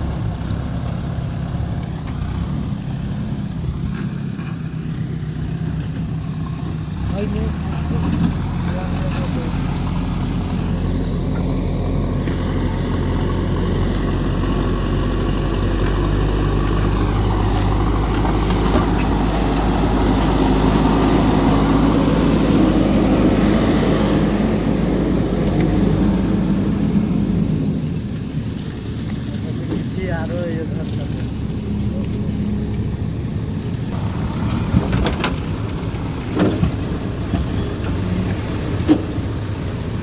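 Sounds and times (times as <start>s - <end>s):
backhoe diesel engine under load: 0.0s - 40.0s.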